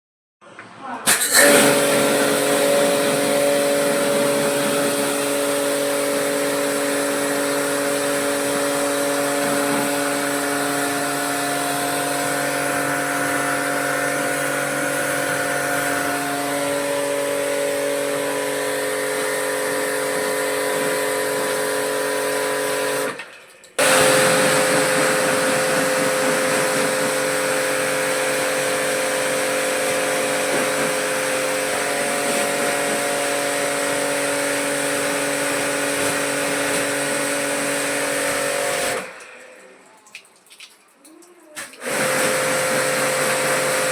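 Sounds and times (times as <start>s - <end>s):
water spray hissing: 1.1s - 23.0s
pressure washer motor hum: 1.1s - 39.8s, 41.6s - 43.9s.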